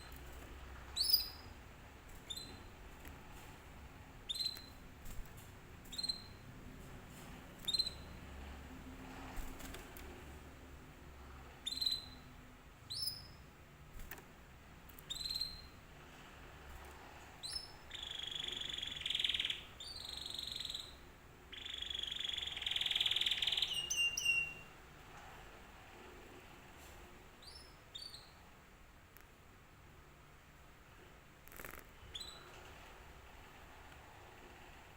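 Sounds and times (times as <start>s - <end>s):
canary chirping: 0.0s - 3.4s, 4.2s - 5.3s, 5.9s - 6.5s, 7.5s - 8.3s, 11.6s - 13.5s, 15.0s - 15.9s, 17.4s - 24.8s, 27.4s - 28.5s, 31.5s - 32.6s
canary trilled song: 0.0s - 8.4s, 11.6s - 13.6s, 15.0s - 15.9s, 17.4s - 24.8s, 27.4s - 28.5s, 31.5s - 32.6s.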